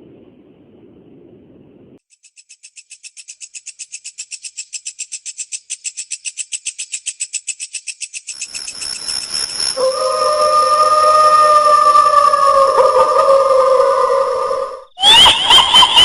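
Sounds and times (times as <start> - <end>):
fast high pulsing chirr: 8.2 - 16.0
steady high ringing tones: 8.3 - 14.7
wavering eerie tone: 8.4 - 16.0.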